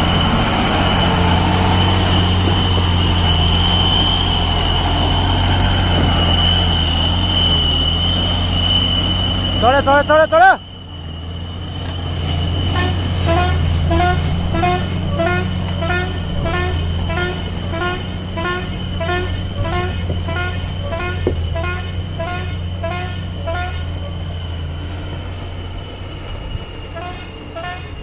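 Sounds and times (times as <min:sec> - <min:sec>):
diesel truck engine under load: 0:00.0 - 0:09.9
short rising chirps: 0:00.1 - 0:13.2.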